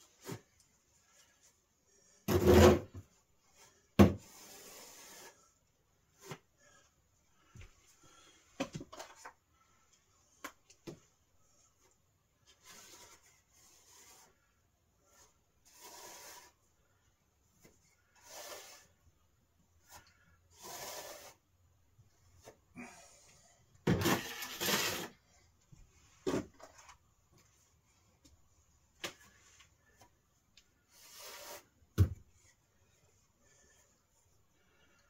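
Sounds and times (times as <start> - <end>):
hand rubbing and scraping: 10.2 - 16.7, 24.2 - 35.0.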